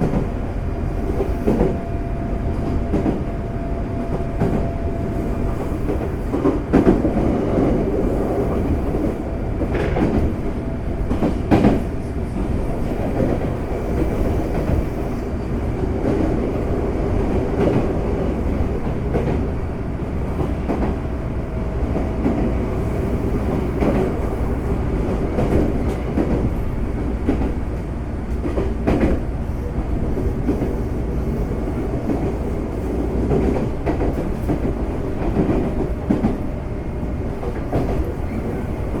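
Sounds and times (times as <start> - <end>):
train wheels rumbling on rail: 0.0 - 39.0
clacks over rail joints: 9.6 - 14.9.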